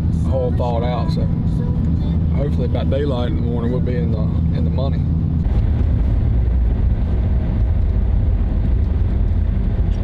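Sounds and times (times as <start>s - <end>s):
truck engine and road rumble: 0.0s - 10.0s.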